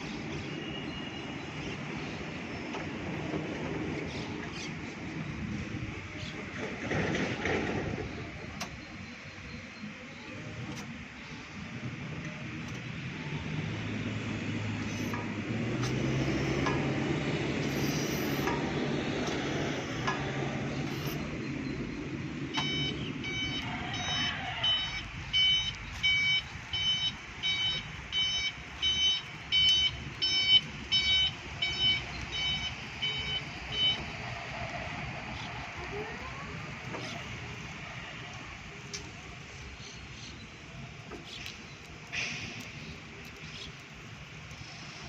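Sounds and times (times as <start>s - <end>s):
warning alarm beeping: 16.1s - 16.6s, 20.8s - 34.2s.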